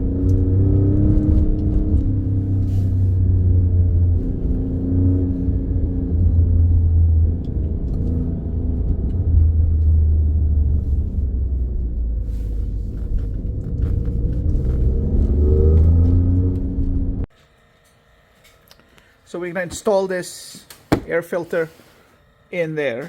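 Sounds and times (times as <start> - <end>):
car engine deep rumble: 0.0 - 17.3.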